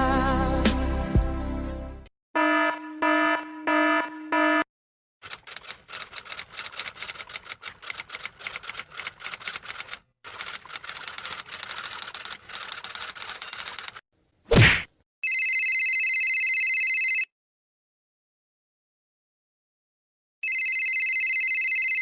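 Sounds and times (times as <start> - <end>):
pitched beeping effect: 2.4 - 4.7
keyboard typing clatter: 5.2 - 14.0.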